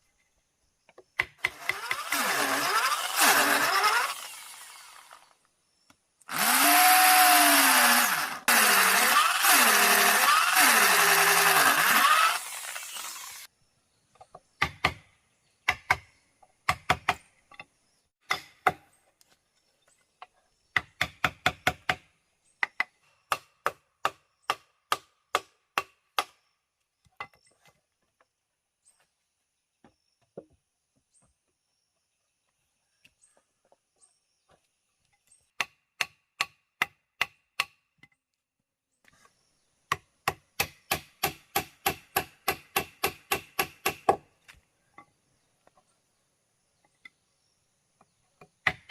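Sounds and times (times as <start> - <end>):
hand tool striking wood: 39.9 - 44.2.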